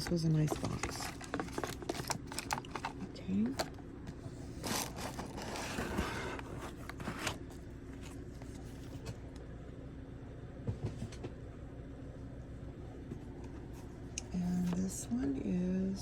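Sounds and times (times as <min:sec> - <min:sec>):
packaging rustling and scraping: 0:00.0 - 0:09.2.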